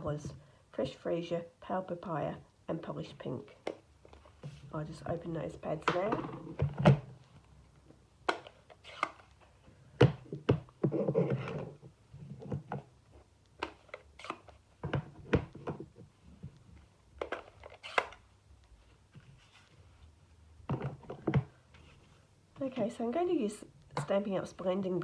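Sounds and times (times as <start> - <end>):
plastic cases clicking and knocking: 5.8 - 7.3, 9.9 - 13.0, 13.6 - 16.1, 17.2 - 18.1, 20.6 - 21.6.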